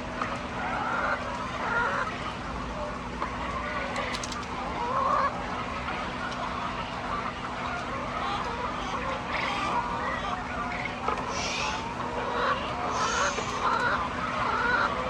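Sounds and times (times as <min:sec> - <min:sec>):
steady low hum: 0:00.0 - 0:15.0
hens clucking: 0:00.6 - 0:15.0.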